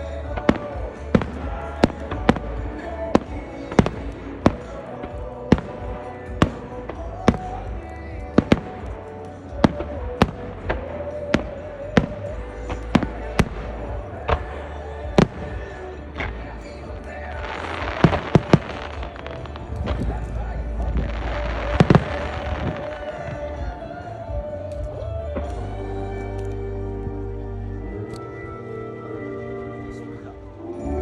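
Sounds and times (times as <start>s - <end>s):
music: 0.0s - 31.0s
fireworks bangs: 0.2s - 23.8s.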